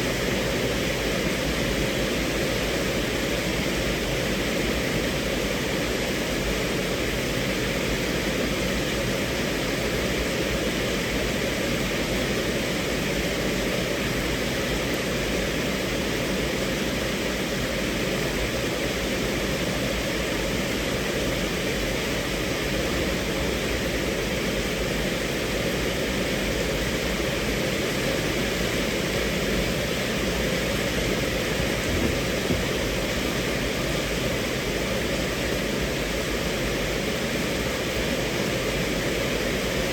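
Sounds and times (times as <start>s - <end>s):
rain on a car roof: 28.2s - 34.2s.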